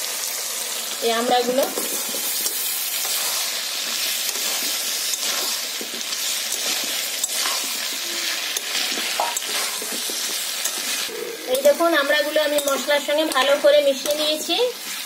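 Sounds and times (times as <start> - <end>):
food sizzling in hot oil: 0.0 - 15.0
metal spatula ticking against pan: 12.5 - 14.2.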